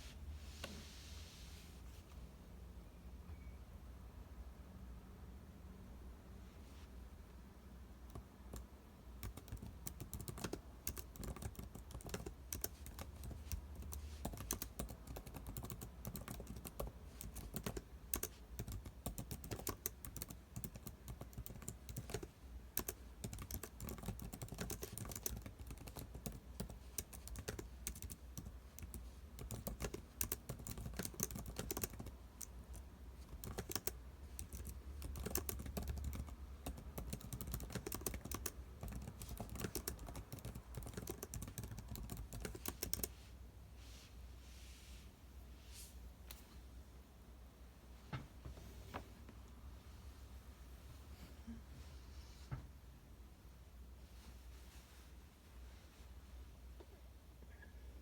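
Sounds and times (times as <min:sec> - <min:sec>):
computer keyboard typing: 0:08.1 - 0:43.1.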